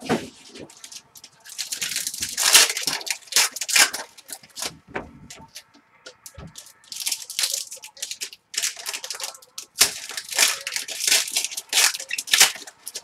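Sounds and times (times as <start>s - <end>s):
wrappers crinkling and tearing: 0.0s - 13.0s.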